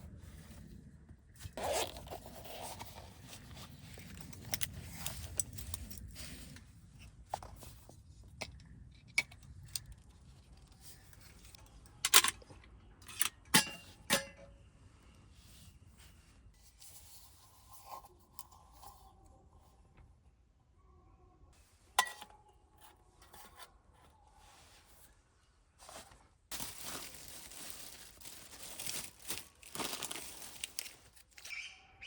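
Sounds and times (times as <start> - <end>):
packaging rustling and scraping: 1.4 - 6.7, 25.8 - 31.6.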